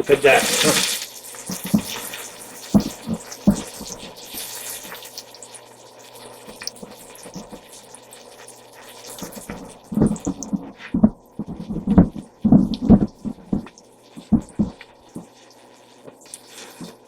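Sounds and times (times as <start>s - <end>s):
low steady hum: 9.4s - 15.5s.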